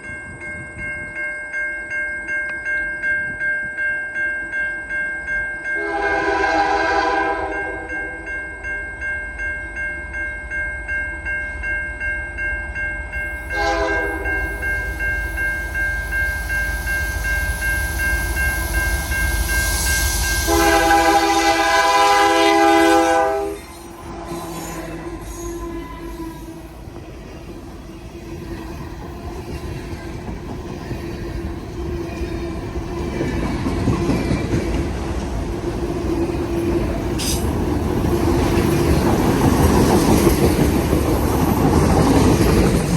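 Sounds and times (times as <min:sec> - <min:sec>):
train engines and wheels rumbling: 0:00.0 - 0:42.9
train air horn: 0:05.8 - 0:08.2, 0:13.5 - 0:14.5, 0:20.4 - 0:26.8.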